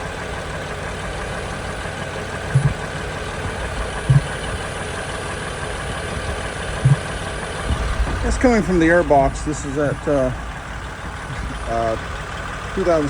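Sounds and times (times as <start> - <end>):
car engine idling: 0.0 - 13.0
low pops from air box: 2.6 - 2.8, 4.1 - 4.3, 6.8 - 7.1.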